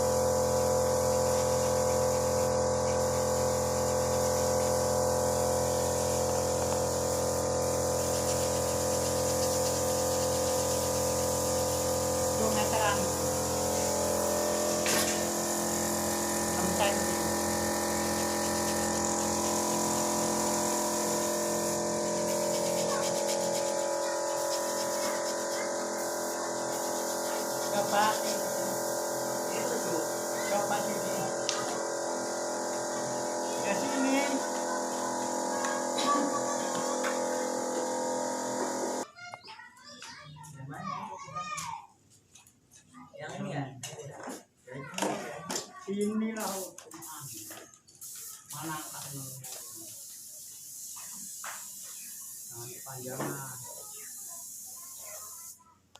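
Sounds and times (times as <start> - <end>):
multi-tone buzz: 0.0 - 39.0
small electric motor humming: 0.0 - 39.1
electric hum: 9.4 - 23.6.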